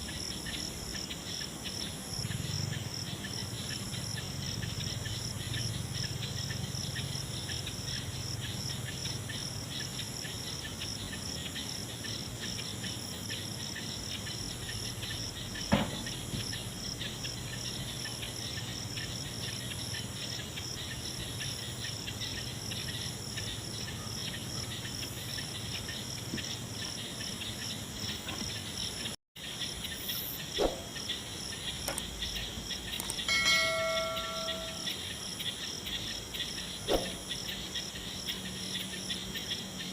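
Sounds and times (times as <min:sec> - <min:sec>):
insect chorus trilling: 0:00.0 - 0:39.9
sharp clicks: 0:31.8 - 0:32.1, 0:32.9 - 0:33.3
short steady tone: 0:33.3 - 0:35.0.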